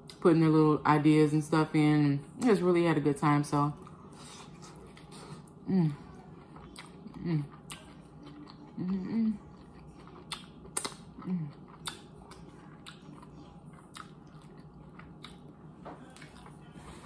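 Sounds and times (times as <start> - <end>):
close-up chewing: 3.8 - 17.0.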